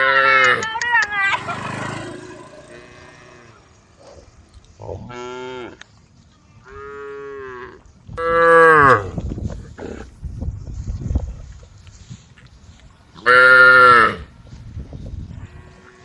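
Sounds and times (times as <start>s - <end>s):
cows mooing: 1.3s - 3.8s.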